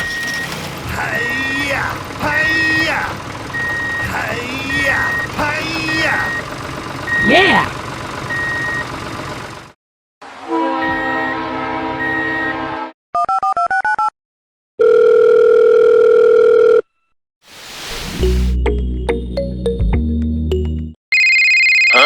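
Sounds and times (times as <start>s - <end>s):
steady dial tone: 14.8s - 16.9s
music: 18.2s - 21.0s.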